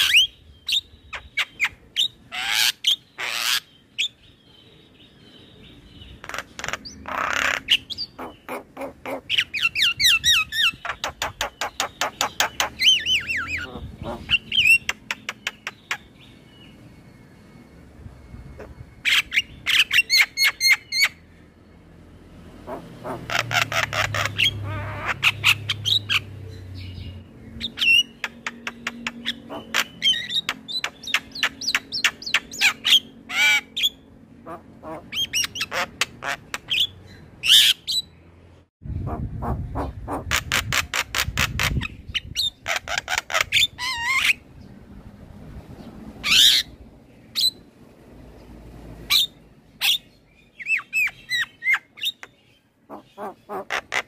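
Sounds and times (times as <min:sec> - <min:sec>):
myna bird singing squawks and whistles: 0:00.0 - 0:04.4, 0:05.1 - 0:16.7, 0:18.5 - 0:21.2, 0:22.7 - 0:34.1, 0:49.1 - 0:54.0.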